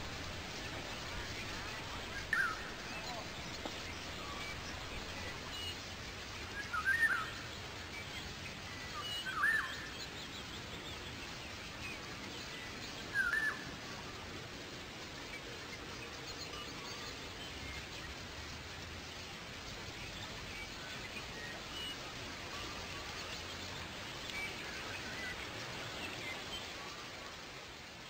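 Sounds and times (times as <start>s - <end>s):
bird chirping: 0.0s - 5.8s
faint distant bird calls: 0.0s - 28.0s
outdoor background noise: 0.0s - 28.0s.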